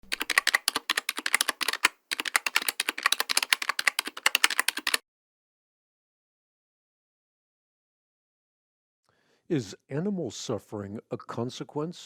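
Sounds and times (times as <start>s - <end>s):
fast typing on a keyboard: 0.0s - 5.0s.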